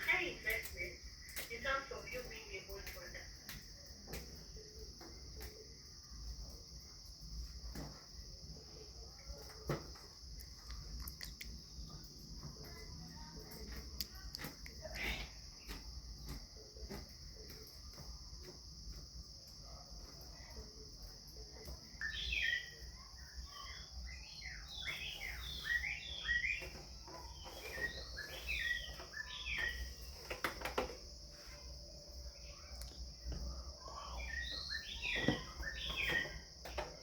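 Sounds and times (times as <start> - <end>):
bird chirping: 21.6 - 30.8, 32.2 - 37.0.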